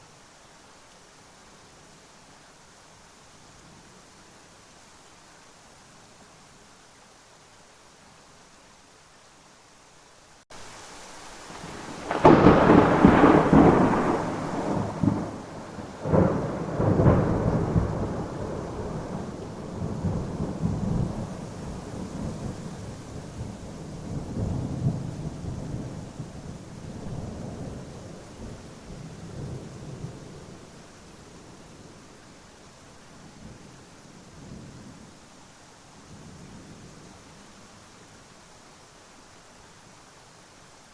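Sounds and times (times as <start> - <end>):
steady rain: 0.0 - 40.9
rolling thunder: 11.5 - 30.6
thunderclap: 11.6 - 21.2.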